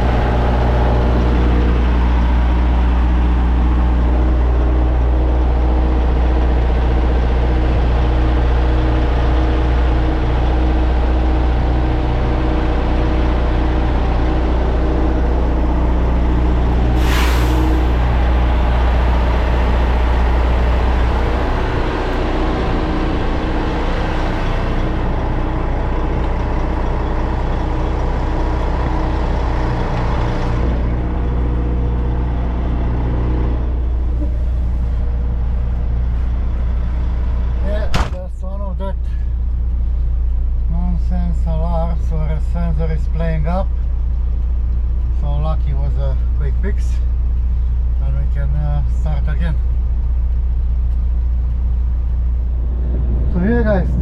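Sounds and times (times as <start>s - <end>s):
diesel engine idling: 0.0s - 54.0s
hiss of released air: 17.0s - 17.9s.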